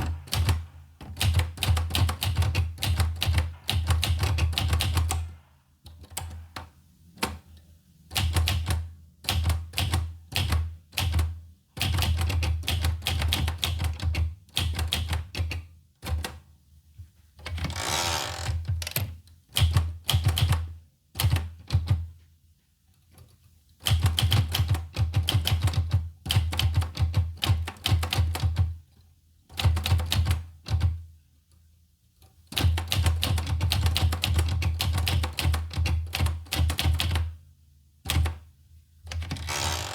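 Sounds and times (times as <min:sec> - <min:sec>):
typewriter key strikes: 0:00.0 - 0:05.3
typewriter carriage sliding rasp: 0:17.6 - 0:18.6, 0:39.2 - 0:39.9.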